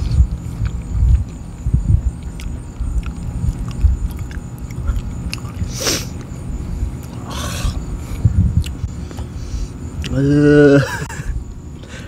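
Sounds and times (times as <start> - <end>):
wind rumble on microphone: 0.0 - 12.0
person chewing: 2.1 - 7.2, 8.6 - 8.8.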